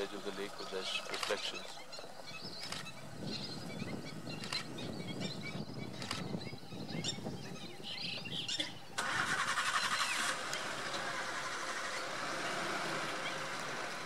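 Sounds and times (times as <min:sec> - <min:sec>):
small birds chirping: 0:00.0 - 0:09.0, 0:11.8 - 0:14.0
vehicle engine starting and running: 0:08.9 - 0:14.0.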